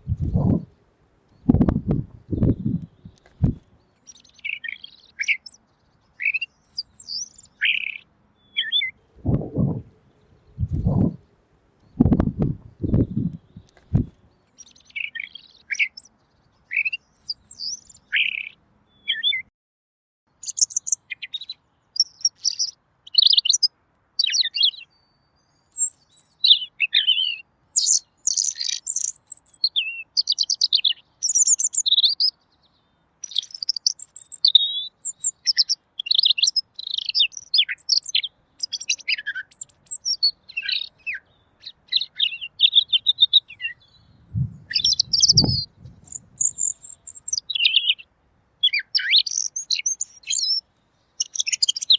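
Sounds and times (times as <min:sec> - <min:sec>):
bird warbling song: 0:00.0 - 0:00.7, 0:01.3 - 0:19.5, 0:20.4 - 0:51.9
low thump: 0:01.5 - 0:03.6, 0:12.0 - 0:13.3.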